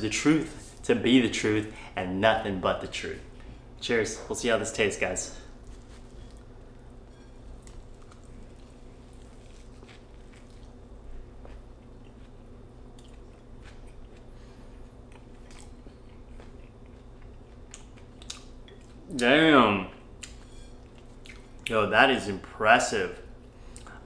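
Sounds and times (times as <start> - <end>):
steady low hum: 0.0 - 24.0
man chewing with crunches: 5.5 - 19.2, 20.1 - 21.7, 23.4 - 24.0.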